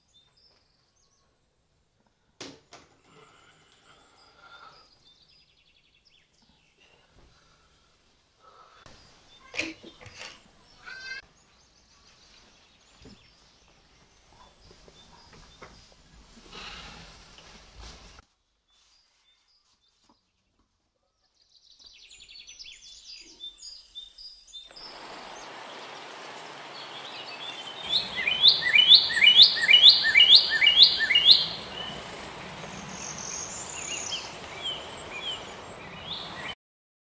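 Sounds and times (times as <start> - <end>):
songbirds chirping: 0.0 - 2.2, 3.0 - 16.7, 18.7 - 36.6
bird quick falling notes: 24.7 - 32.1.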